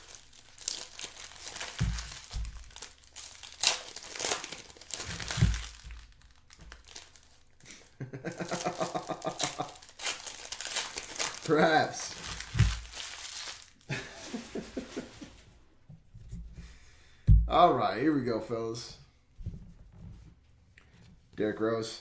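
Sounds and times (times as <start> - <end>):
wrappers crinkling and tearing: 0.0 - 15.2.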